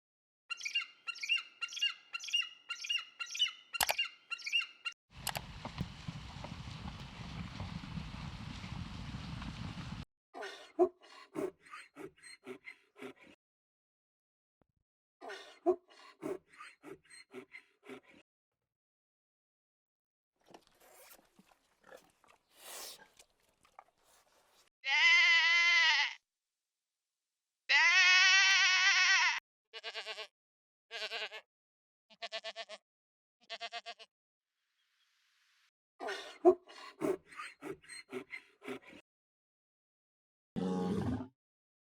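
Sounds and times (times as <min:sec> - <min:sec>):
bird squawking: 0:00.5 - 0:04.9
low rumbling noise: 0:05.2 - 0:10.0
loud wavering bleat: 0:24.8 - 0:26.2, 0:27.7 - 0:30.3, 0:30.9 - 0:31.4, 0:32.1 - 0:32.8, 0:33.4 - 0:34.1.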